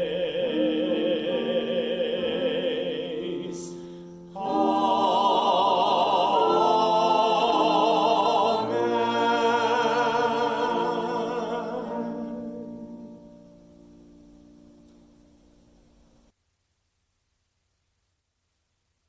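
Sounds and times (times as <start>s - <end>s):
choir singing held chords: 0.0s - 14.0s.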